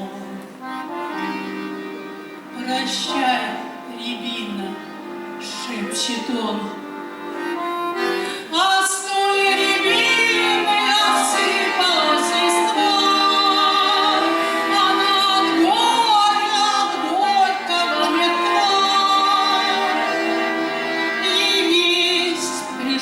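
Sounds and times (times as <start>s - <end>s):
woman singing: 0.0s - 0.4s, 2.6s - 6.8s, 8.4s - 23.0s
instrumental accompaniment: 0.0s - 23.0s.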